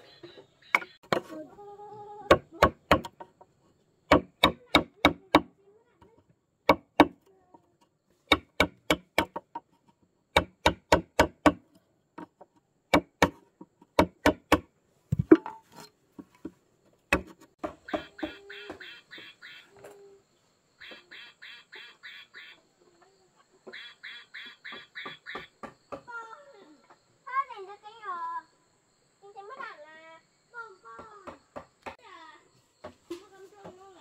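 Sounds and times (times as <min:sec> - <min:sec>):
sharp blows on wood: 0:02.3 - 0:03.2, 0:04.1 - 0:05.5, 0:06.7 - 0:07.2, 0:08.3 - 0:09.6, 0:10.3 - 0:11.6, 0:12.9 - 0:13.4, 0:14.0 - 0:15.5.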